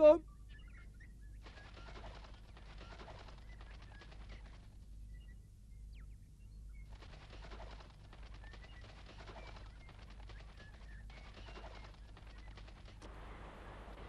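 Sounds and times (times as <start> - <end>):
faint bird chirps: 0.1 - 13.0
dense crackling noise: 6.9 - 14.0.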